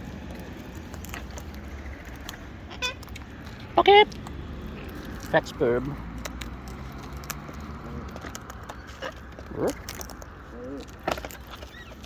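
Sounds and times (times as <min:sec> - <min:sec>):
beaks cracking food: 0:00.0 - 0:12.0
cockatoo calls: 0:10.5 - 0:12.0.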